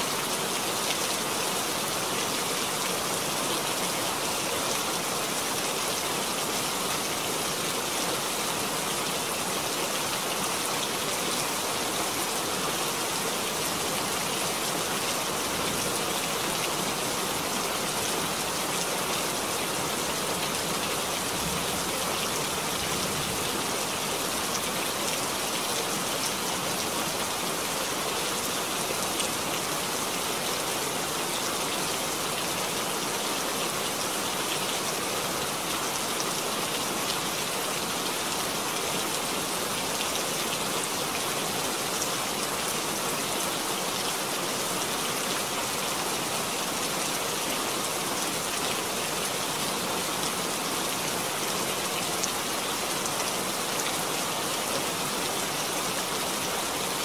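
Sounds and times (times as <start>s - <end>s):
rain falling into a puddle: 0.0s - 57.0s.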